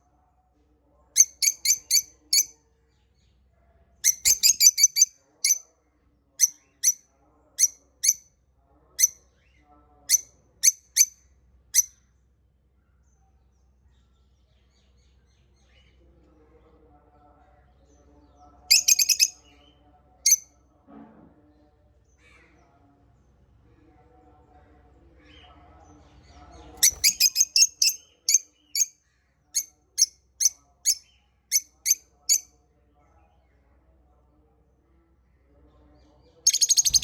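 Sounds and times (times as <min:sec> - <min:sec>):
parrots chirping shrilly: 0:01.2 - 0:02.5, 0:04.1 - 0:05.6, 0:18.7 - 0:19.4, 0:26.8 - 0:28.9, 0:36.5 - 0:37.0.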